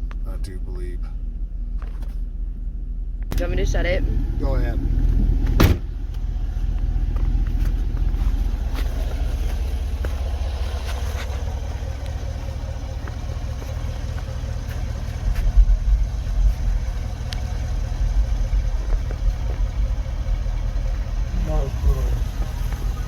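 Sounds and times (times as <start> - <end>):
car engine rumbling: 0.0 - 23.0
deep uneven thumps: 5.0 - 23.0.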